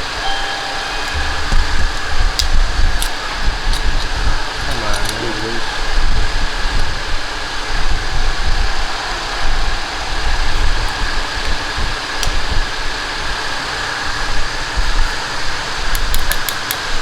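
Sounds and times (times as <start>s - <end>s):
thin high tone: 0.0s - 4.6s
mechanical running noise: 0.0s - 17.0s
sharp clicks and ticks: 15.9s - 16.8s.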